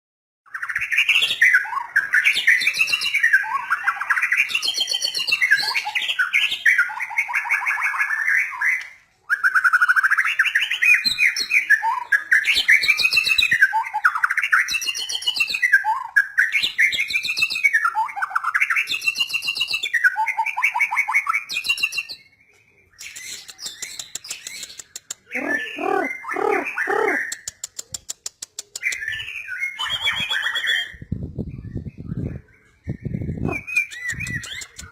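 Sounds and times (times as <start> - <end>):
bird singing whistled phrases: 0.5 - 27.5, 28.8 - 34.9
low repeated bird notes: 9.4 - 27.5.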